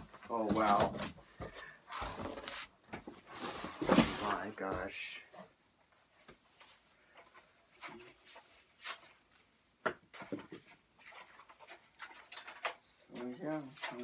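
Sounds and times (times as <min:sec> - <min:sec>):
packaging rustling and clicking: 0:01.9 - 0:02.7.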